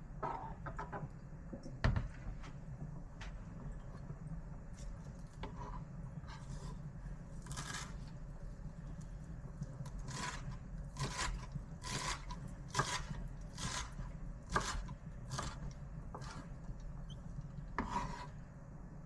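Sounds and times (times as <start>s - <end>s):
scraping strokes on wooden board: 17.8s - 18.4s.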